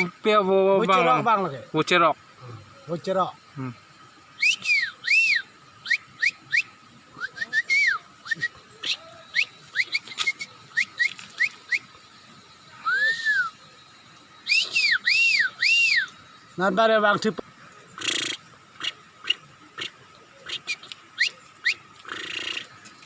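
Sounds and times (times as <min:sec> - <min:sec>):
person whistling bird calls: 0:04.4 - 0:12.0, 0:12.8 - 0:13.6, 0:14.4 - 0:16.2, 0:20.6 - 0:21.8.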